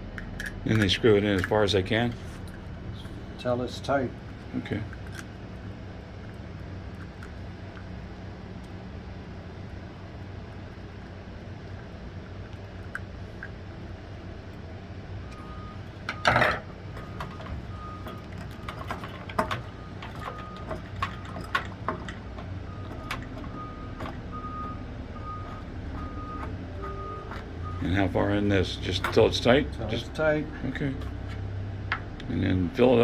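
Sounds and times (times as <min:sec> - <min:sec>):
low steady hum: 0:00.0 - 0:33.0
plastic parts clicking and knocking: 0:00.1 - 0:02.6, 0:16.0 - 0:29.6.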